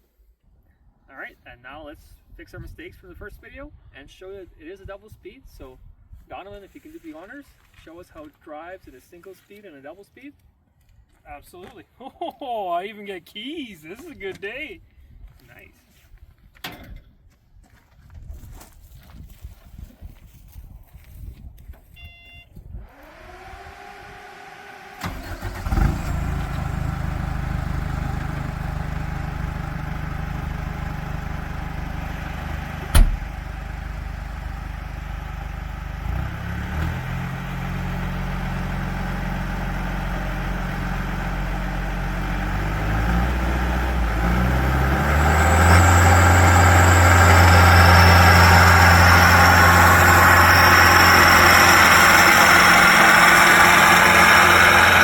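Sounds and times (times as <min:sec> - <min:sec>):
diesel engine starting and idling: 0:22.9 - 0:55.0
sharp knock: 0:32.9 - 0:33.2.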